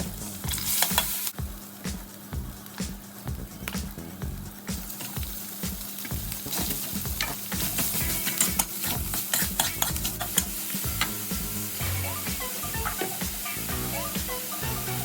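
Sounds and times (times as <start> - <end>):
stir-fry sizzling in a hot pan: 0.0 - 15.0
spatula scraping a pan: 6.6 - 11.0.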